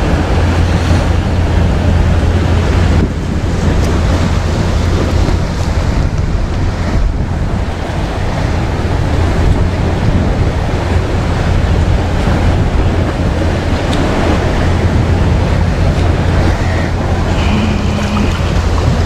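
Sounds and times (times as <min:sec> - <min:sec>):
sea waves: 0:00.0 - 0:19.0
wind buffeting microphone: 0:00.0 - 0:19.0.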